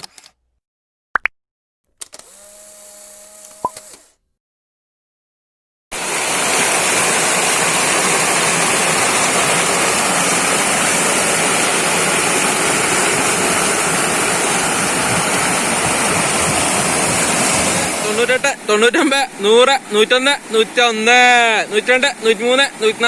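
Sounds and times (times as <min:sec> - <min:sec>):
waterfall rushing over rocks: 0:06.0 - 0:23.0.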